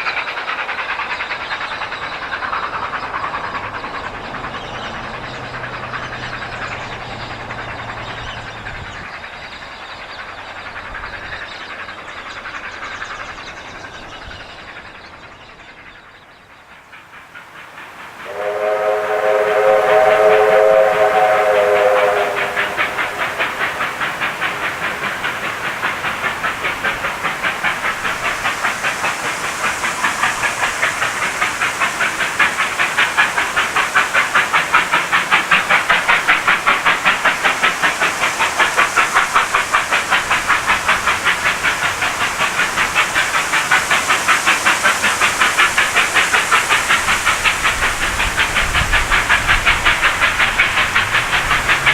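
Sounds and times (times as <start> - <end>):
steam hissing: 0.0 - 51.9
locomotive exhaust beats: 0.2 - 51.9
steam locomotive whistle: 18.2 - 24.4.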